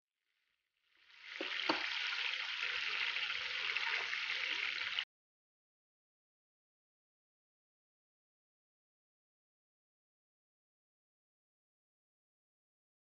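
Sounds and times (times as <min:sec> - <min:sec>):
chicken wings sizzling in oil: 0:01.0 - 0:05.1.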